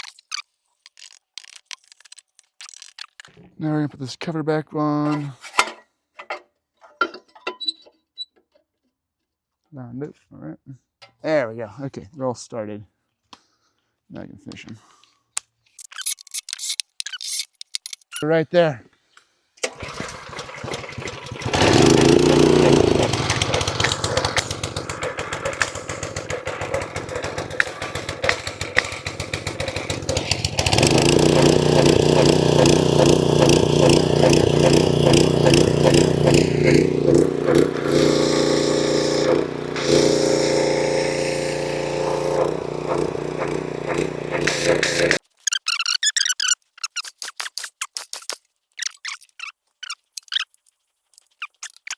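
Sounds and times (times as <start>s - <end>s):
cordless power tool rattling: 19.6s - 45.2s.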